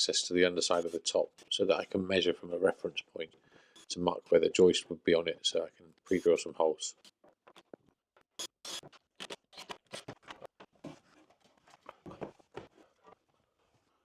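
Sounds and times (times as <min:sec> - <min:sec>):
tools clicking and scraping: 0:08.4 - 0:10.5.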